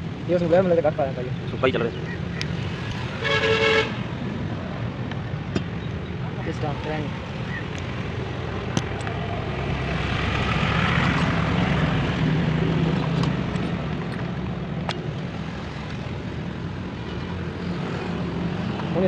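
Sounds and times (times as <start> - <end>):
sharp clicks: 8.7 - 9.2.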